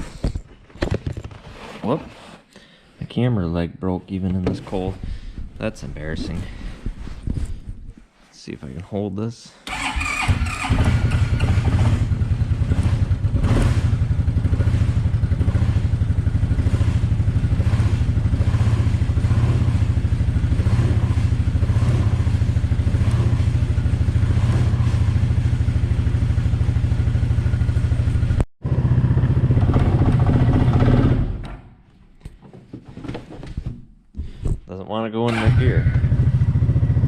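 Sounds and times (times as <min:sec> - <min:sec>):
atv engine idling: 0:09.7 - 0:31.1, 0:35.3 - 0:37.0.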